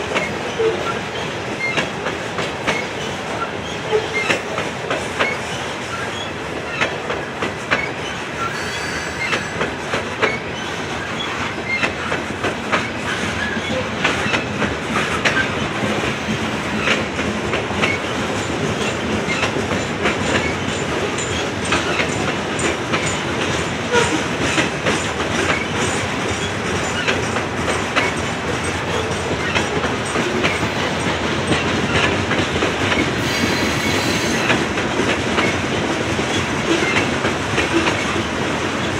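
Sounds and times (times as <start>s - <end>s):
wheel squeal: 7.8s - 11.9s, 33.2s - 34.6s.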